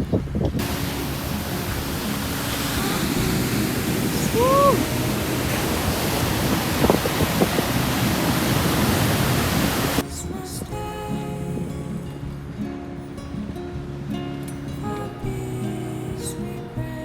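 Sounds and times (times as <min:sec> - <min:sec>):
waves breaking: 0:00.0 - 0:17.0
wind: 0:00.0 - 0:17.0
rising and falling call: 0:00.6 - 0:10.0.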